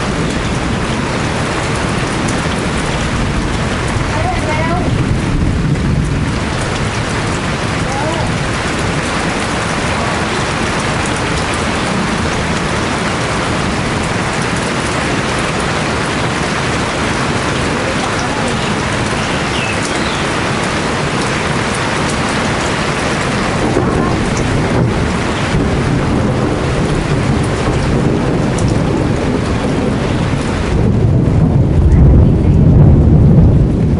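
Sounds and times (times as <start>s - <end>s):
heavy rain downpour: 0.0s - 33.9s
low rumble of thunder: 0.0s - 33.9s.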